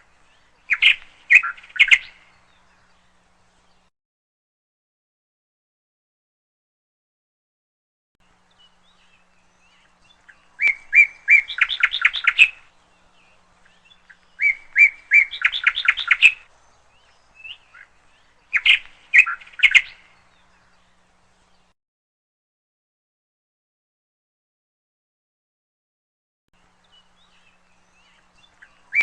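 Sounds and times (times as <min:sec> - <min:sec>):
canary chirping: 0:00.6 - 0:02.2, 0:09.1 - 0:12.7, 0:13.7 - 0:16.5, 0:17.2 - 0:20.0.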